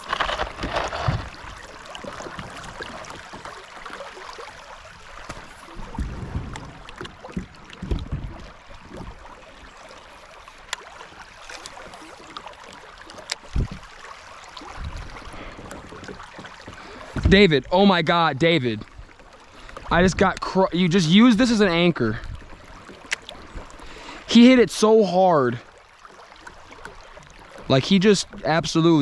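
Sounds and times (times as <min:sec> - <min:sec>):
running water: 0:00.0 - 0:29.0
dull thumps against hull: 0:05.2 - 0:09.2, 0:13.5 - 0:13.9, 0:15.7 - 0:17.5.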